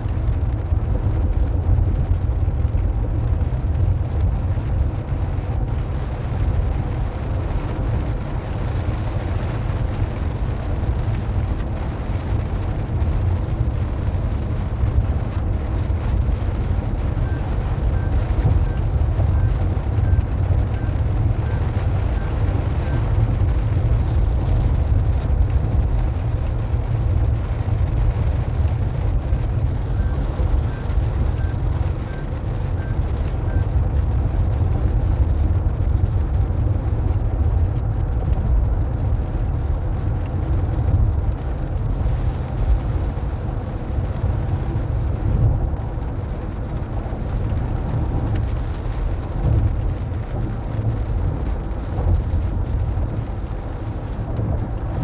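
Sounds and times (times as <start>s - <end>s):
car road rumble from inside: 0.0s - 55.0s
rain falling on car: 0.0s - 55.0s.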